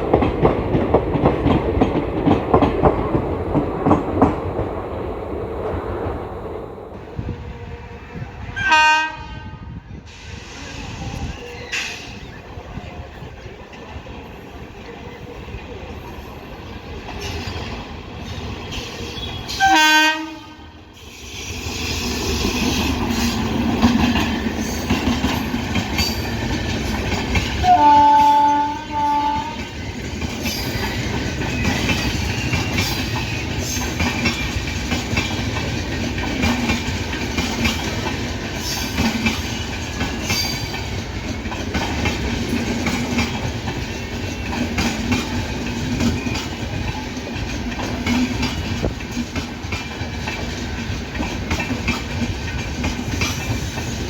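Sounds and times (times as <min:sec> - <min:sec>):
wheels clacking over rail joints: 0:00.0 - 0:05.1, 0:21.7 - 0:54.0
train rumbling: 0:00.0 - 0:54.0
train horn blasts: 0:07.2 - 0:09.9, 0:19.1 - 0:20.8, 0:27.6 - 0:29.8.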